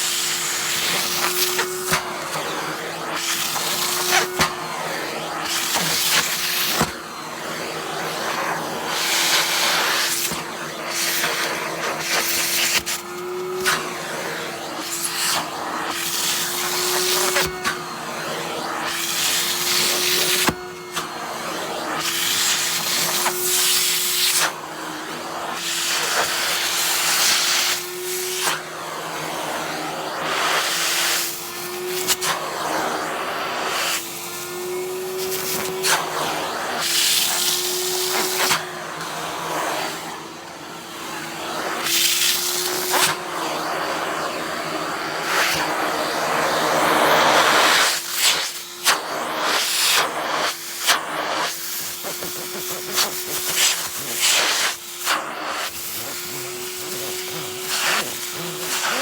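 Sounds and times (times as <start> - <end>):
vacuum cleaner motor hum: 0.0 - 59.0.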